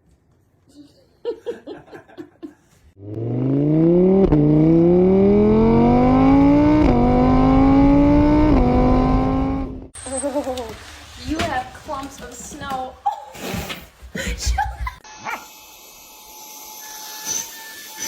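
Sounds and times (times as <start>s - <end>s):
car engine accelerating hard: 3.0s - 9.9s.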